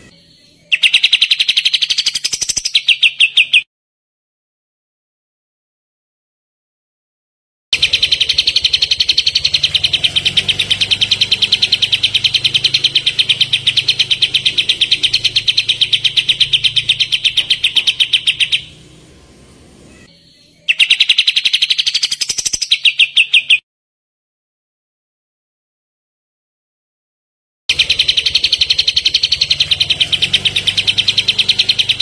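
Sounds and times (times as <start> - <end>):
songbird rapid sharp chirps: 0.0 - 3.7, 7.8 - 23.6, 27.7 - 32.0.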